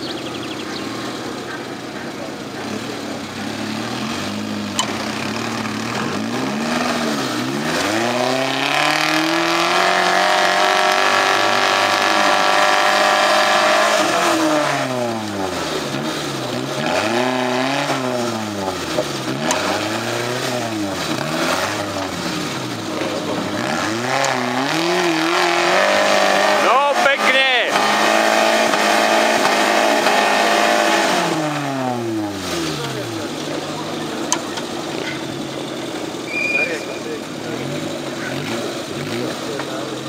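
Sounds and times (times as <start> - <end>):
off-road vehicle engine revving: 0.0 - 40.0.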